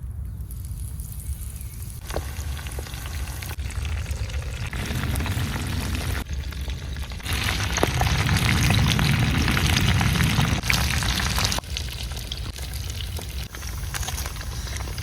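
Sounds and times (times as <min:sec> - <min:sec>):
chicken frying in hot oil: 0:00.6 - 0:15.0.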